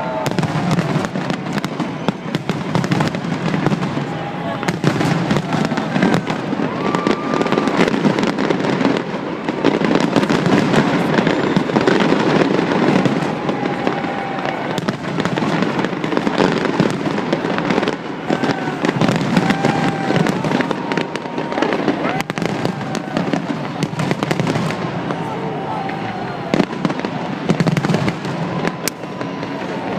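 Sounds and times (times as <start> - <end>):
firework bangs and crackling: 0.0 - 29.9
firework whistling: 0.0 - 29.9.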